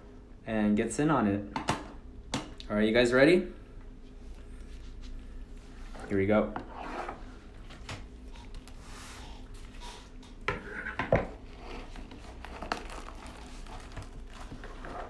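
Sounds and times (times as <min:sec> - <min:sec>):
packaging rustling and crinkling: 0:11.5 - 0:15.0.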